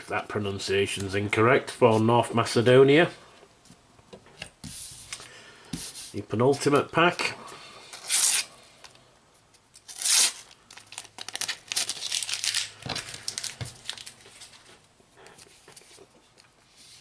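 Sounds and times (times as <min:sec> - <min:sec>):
paper packet tearing and crackling: 0:09.8 - 0:14.6.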